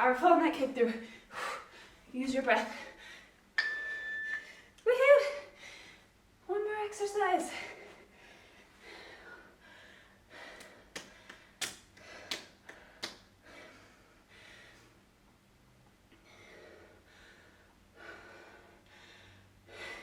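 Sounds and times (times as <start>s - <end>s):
person breathing heavily: 7.5s - 15.0s, 16.2s - 20.0s.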